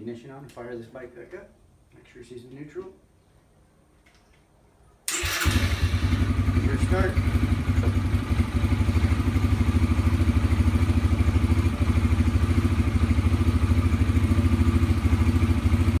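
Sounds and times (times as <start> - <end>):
engine idling: 5.1 - 16.0.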